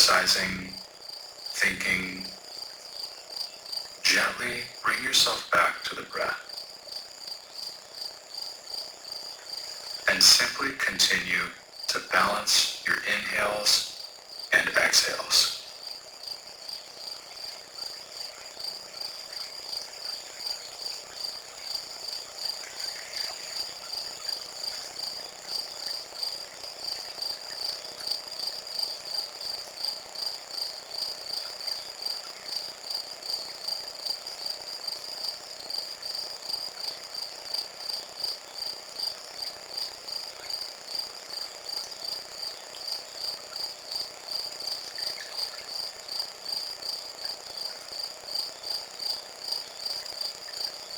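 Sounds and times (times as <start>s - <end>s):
crickets chirping: 0.0s - 50.9s.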